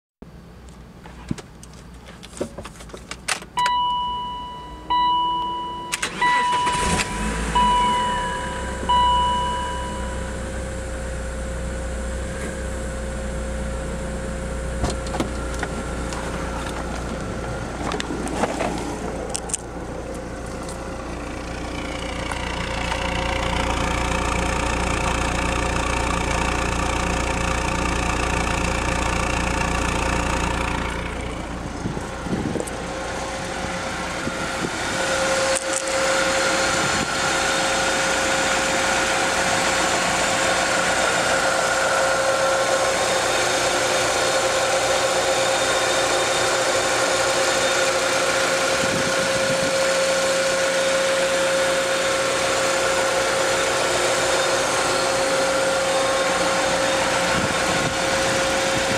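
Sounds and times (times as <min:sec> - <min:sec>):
car engine idling: 0:00.3 - 0:58.9
engine whine: 0:00.3 - 0:58.9.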